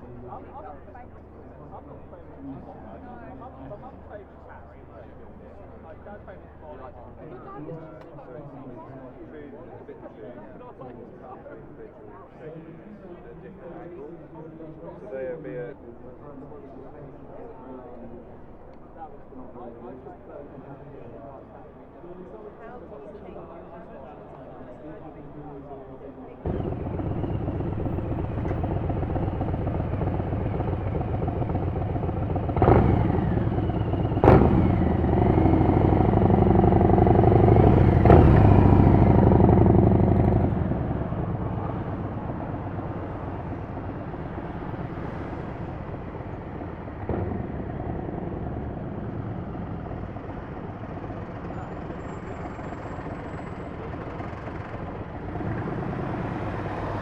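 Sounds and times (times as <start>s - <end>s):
street traffic: 0.0s - 15.0s, 15.6s - 57.0s
motorcycle engine running: 26.5s - 57.0s.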